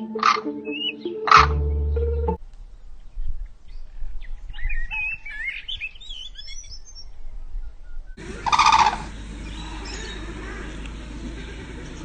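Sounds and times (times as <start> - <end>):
crane honk: 8.2 - 12.0
cranes chirping: 8.2 - 12.0.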